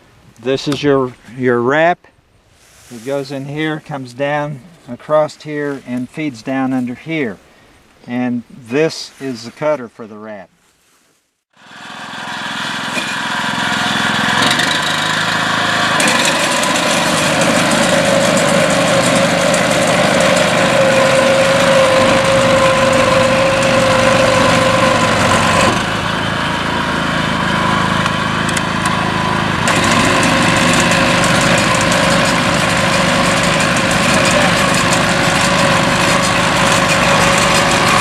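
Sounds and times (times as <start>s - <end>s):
walk-behind tractor engine running: 11.6s - 38.0s.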